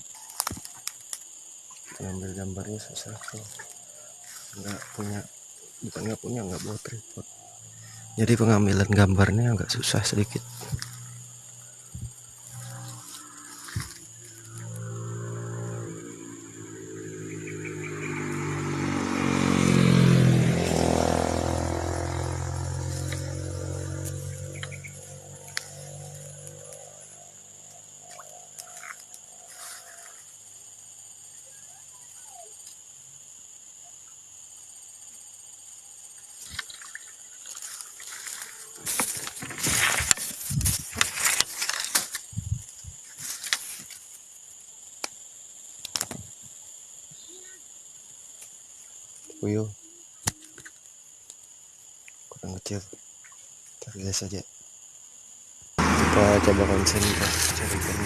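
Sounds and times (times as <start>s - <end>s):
high-pitched insect drone: 0.0s - 58.0s
motorcycle passing by: 12.5s - 28.1s, 55.8s - 58.0s
rustling and crunching handling: 37.5s - 44.0s.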